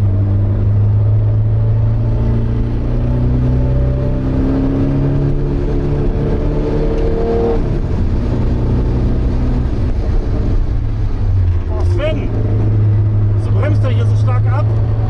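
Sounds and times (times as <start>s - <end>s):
car engine accelerating: 0.0s - 15.0s
car shifting gear: 0.2s - 10.6s.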